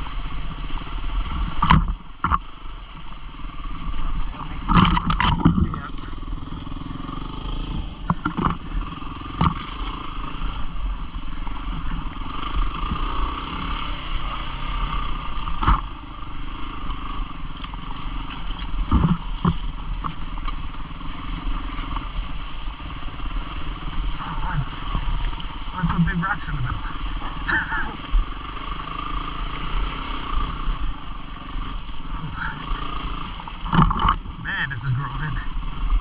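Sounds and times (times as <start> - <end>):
motorcycle engine running: 0.0 - 36.0
bike knocking on rocks: 18.4 - 20.6.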